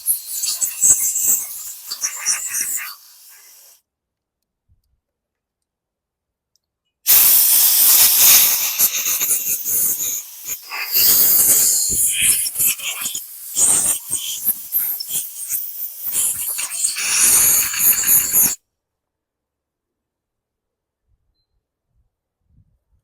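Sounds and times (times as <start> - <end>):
spray hissing: 0.0 - 3.8, 7.1 - 18.6.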